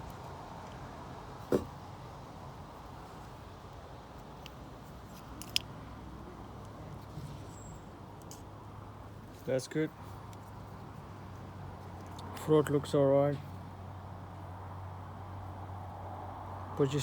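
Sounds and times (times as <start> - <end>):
small metal parts clicking: 4.2 - 5.7.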